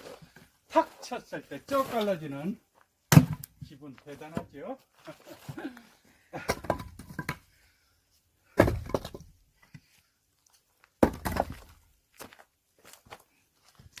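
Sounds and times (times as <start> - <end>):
axe splitting logs: 3.1 - 3.6, 6.4 - 7.4, 8.4 - 9.4, 11.0 - 11.8.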